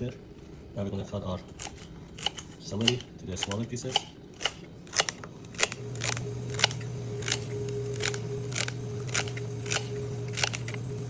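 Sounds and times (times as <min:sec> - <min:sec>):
steady low hum: 0:00.0 - 0:11.0
knife chopping celery on board: 0:01.6 - 0:07.4.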